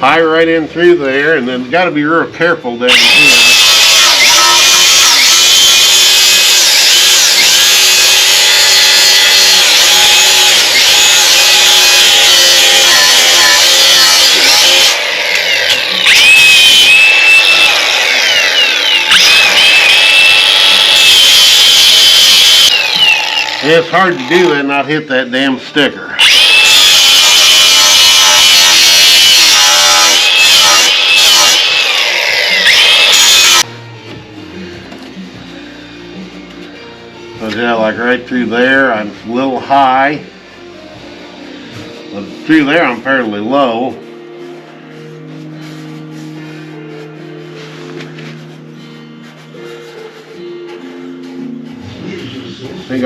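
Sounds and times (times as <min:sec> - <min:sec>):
angle grinder grinding metal: 0:02.8 - 0:25.0, 0:26.2 - 0:33.7, 0:41.7 - 0:44.4.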